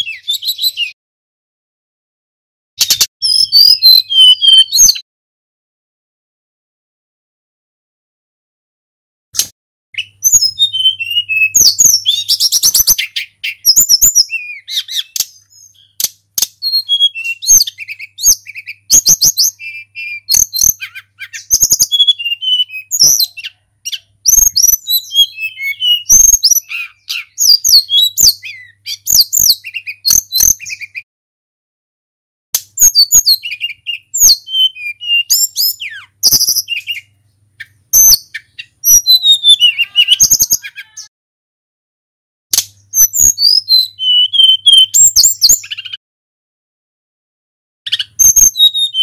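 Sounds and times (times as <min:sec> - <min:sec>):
bird singing whistles and trills: 0:00.0 - 0:01.0, 0:02.8 - 0:05.0, 0:10.0 - 0:31.1, 0:32.6 - 0:41.1, 0:42.8 - 0:46.0, 0:47.9 - 0:49.0.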